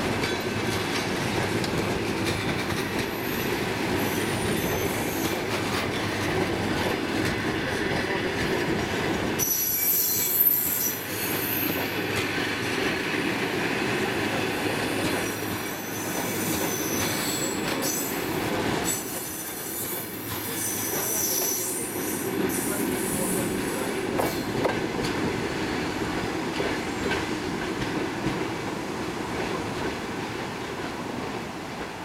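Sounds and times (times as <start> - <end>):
train coaches rolling on rails: 0.0 - 32.0
high-pitched wheel squeal: 9.4 - 11.8.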